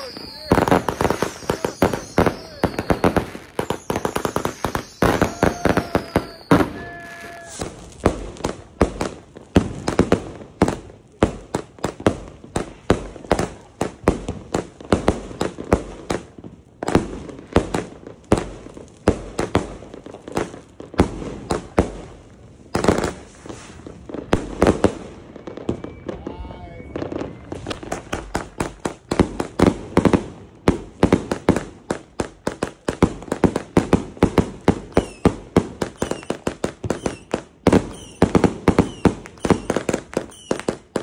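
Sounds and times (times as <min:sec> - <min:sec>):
falling firework whistles: 0:00.0 - 0:08.2, 0:22.7 - 0:28.9, 0:34.7 - 0:41.0
fireworks bangs: 0:00.0 - 0:41.0.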